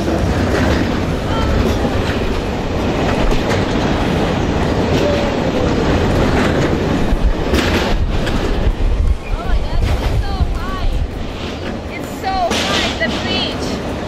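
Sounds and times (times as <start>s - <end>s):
clicking over rail joints: 0.0s - 14.0s
train wheels rumbling: 0.0s - 14.0s.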